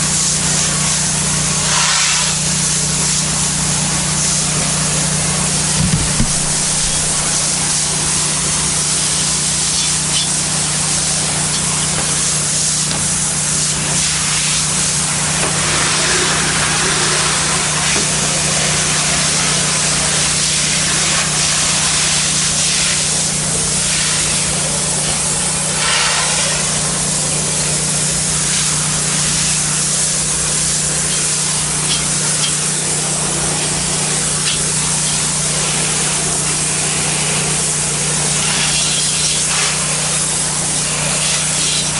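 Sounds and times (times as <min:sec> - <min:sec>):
pressure washer spray hissing: 0:00.0 - 0:41.9
motor humming: 0:04.7 - 0:08.3.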